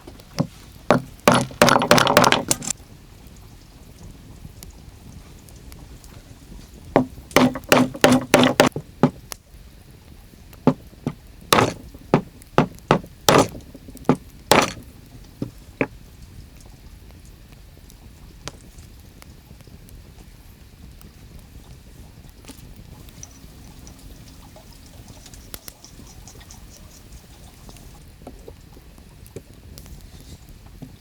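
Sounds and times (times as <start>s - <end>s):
hammer blows knocking: 0.4s - 2.6s, 7.0s - 9.2s, 10.7s - 15.6s.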